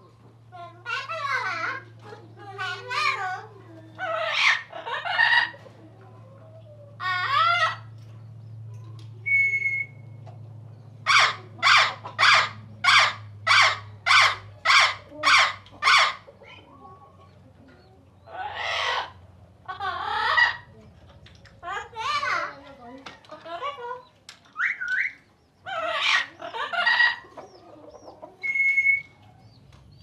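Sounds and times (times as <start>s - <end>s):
harsh bird calls: 2.6s - 5.7s, 6.8s - 30.0s
bird calling: 9.2s - 10.2s, 23.6s - 30.0s
thin bird whistle: 9.2s - 10.2s, 28.4s - 29.2s.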